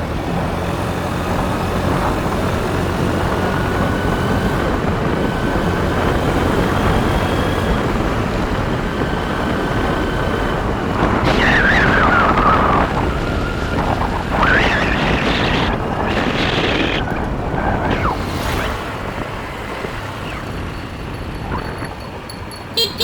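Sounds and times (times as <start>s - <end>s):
motorbike engine rumble: 0.0s - 23.0s.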